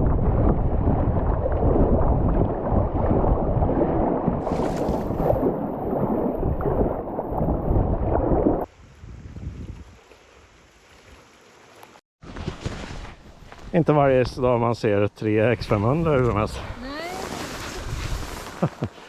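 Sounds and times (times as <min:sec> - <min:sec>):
wind buffeting microphone: 0:00.0 - 0:10.1.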